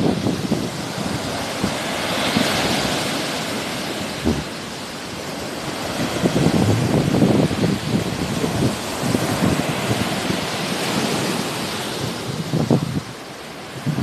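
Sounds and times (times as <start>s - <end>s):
sea waves washing ashore: 0.0s - 14.0s
wind on microphone: 0.0s - 14.0s.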